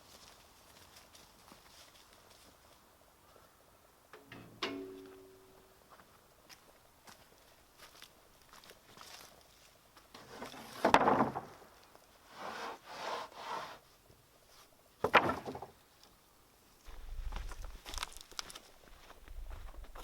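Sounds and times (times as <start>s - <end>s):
wooden boards scraping: 10.2s - 11.7s, 12.3s - 13.8s, 15.0s - 15.8s
wooden boards knocking: 10.8s - 11.6s, 15.0s - 15.8s.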